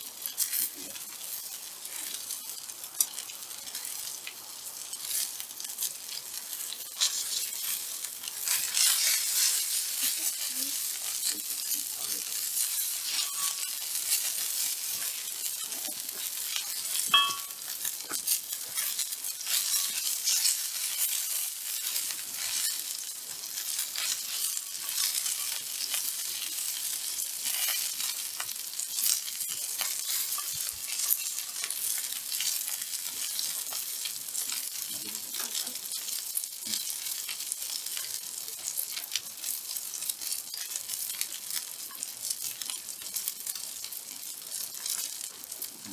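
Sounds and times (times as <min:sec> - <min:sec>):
steak sizzling on a griddle: 0:00.0 - 0:45.9
brief metallic ring: 0:17.1 - 0:17.5.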